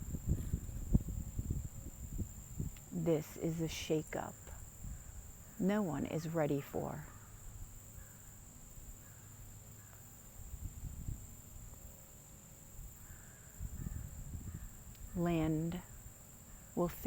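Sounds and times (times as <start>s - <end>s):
insect drone: 0.0s - 17.0s.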